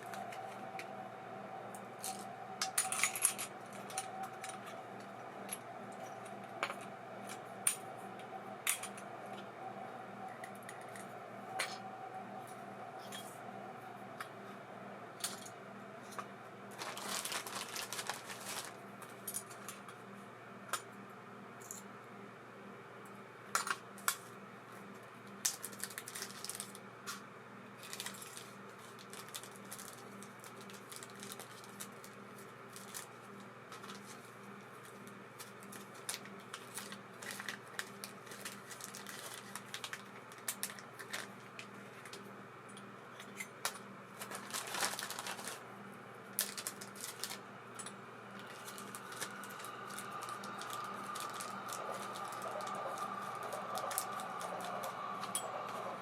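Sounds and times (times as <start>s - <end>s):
steady higher tone: 0.0s - 19.1s, 47.4s - 56.0s
steady low hum: 0.0s - 56.0s.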